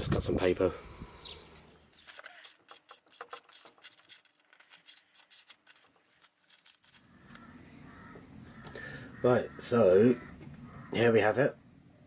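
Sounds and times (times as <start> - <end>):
knife slicing through paper: 2.0 - 7.1.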